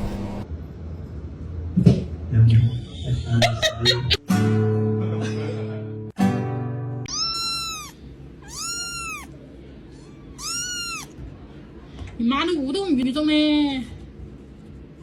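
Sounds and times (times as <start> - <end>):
music: 4.0 - 7.0
cat meowing: 7.1 - 9.4, 10.0 - 11.2.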